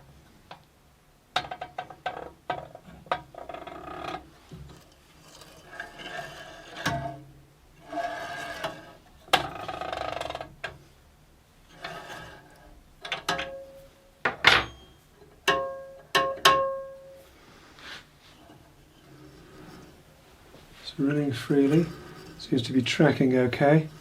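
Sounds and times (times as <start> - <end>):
metallic clicks and knocks: 1.3 - 4.8
rattling and scraping: 18.3 - 24.0.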